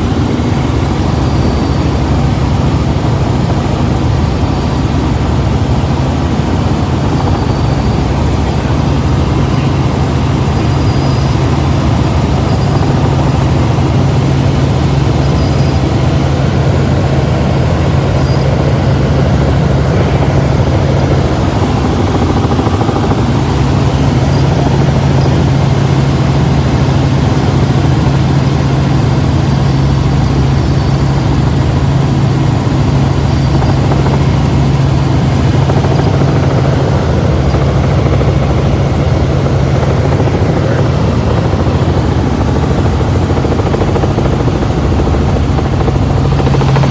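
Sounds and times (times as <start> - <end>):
helicopter engine and rotor drone: 0.0 - 46.9.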